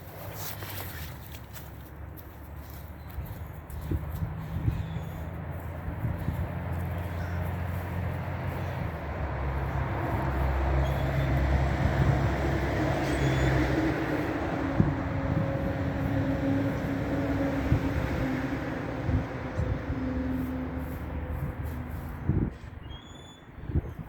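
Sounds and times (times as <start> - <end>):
vehicle engine running: 3.7 - 12.8.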